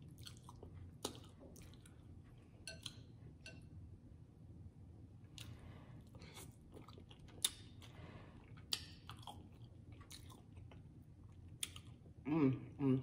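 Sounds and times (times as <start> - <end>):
person chewing food: 0.0 - 3.5, 5.3 - 12.2.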